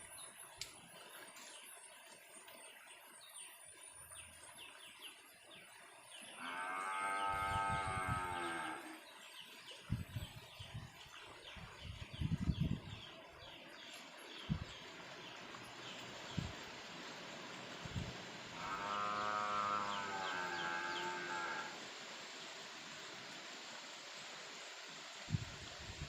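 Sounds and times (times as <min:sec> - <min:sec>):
cow mooing: 0:06.4 - 0:09.0, 0:18.6 - 0:21.8.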